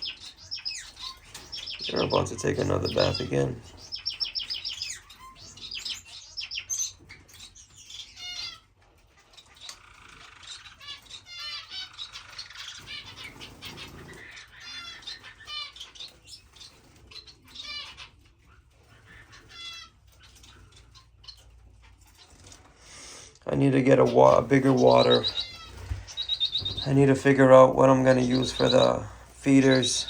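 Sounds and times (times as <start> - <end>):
finches chirping: 0.0 - 30.0
wings fluttering: 12.0 - 22.8, 23.9 - 30.0.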